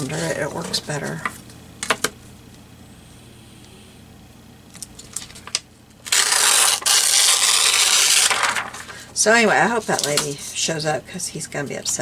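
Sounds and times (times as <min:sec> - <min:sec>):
paper scraping rasp: 0:06.1 - 0:10.6.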